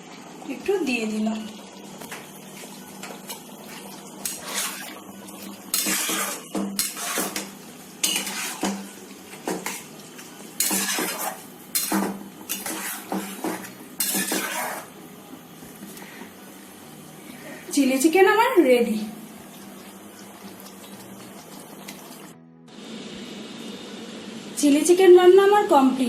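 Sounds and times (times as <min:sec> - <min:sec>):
metal utensil scraping a pan: 0:04.2 - 0:05.0, 0:05.7 - 0:09.9, 0:10.6 - 0:14.9.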